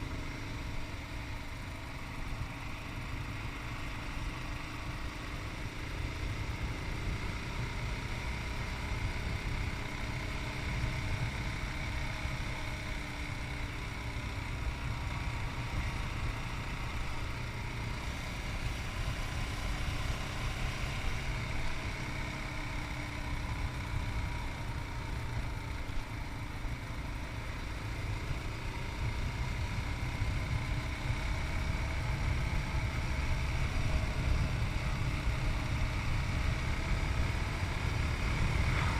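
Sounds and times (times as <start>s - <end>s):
motorcycle engine running: 0.0s - 38.9s
wind rumbling on microphone: 37.8s - 38.9s.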